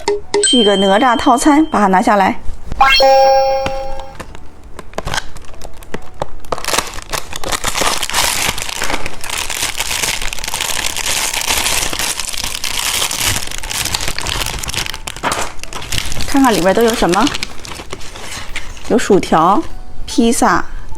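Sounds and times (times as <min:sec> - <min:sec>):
plastic packaging crinkling: 0:04.1 - 0:19.7.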